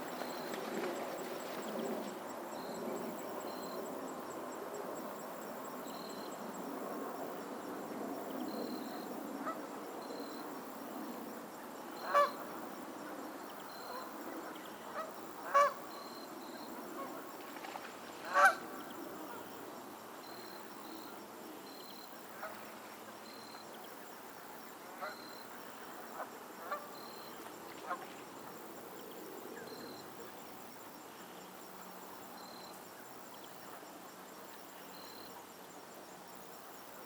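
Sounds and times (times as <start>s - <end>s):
flock of geese: 12.0s - 12.4s, 13.8s - 15.8s, 18.2s - 19.4s, 25.0s - 27.0s, 27.7s - 28.1s.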